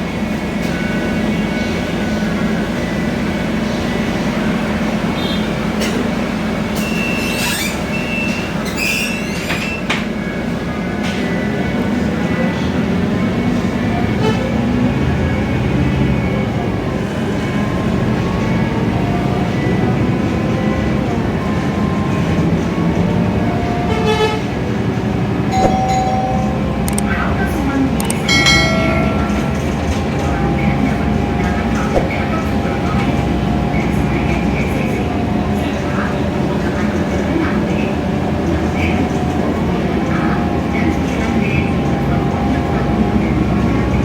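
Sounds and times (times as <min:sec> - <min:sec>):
bus engine and road drone: 0:00.0 - 0:44.0
body rattles and squeaks: 0:06.8 - 0:09.9
short high-pitched tone: 0:25.5 - 0:27.2, 0:28.0 - 0:30.3.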